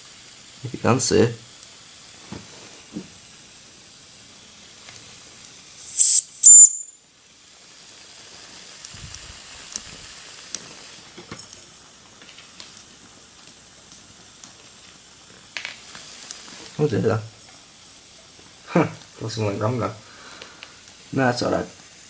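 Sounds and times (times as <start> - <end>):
boiler hissing softly: 0.0 - 22.0
loud blasts of escaping steam: 0.0 - 22.0.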